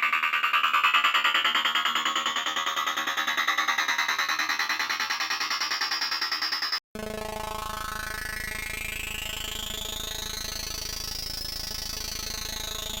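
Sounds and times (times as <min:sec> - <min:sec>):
rhythmic electronic music: 0:00.0 - 0:06.8.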